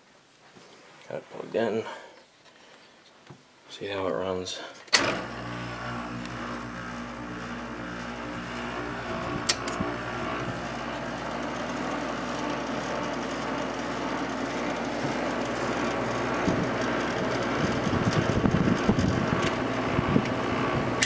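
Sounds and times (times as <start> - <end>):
air conditioner humming: 3.7 - 21.0
air conditioner fan rushing: 4.9 - 21.0.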